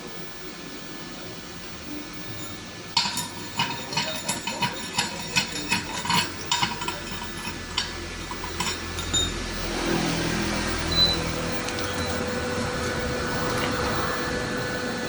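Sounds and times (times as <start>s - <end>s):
hand tools tapping and clinking: 3.0s - 9.4s.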